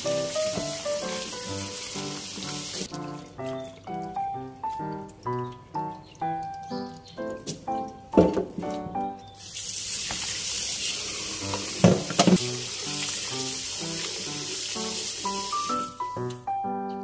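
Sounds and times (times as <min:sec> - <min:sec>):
meat sizzling in hot oil: 0:00.0 - 0:03.0, 0:09.3 - 0:16.3
background music: 0:00.0 - 0:09.4, 0:12.4 - 0:17.0.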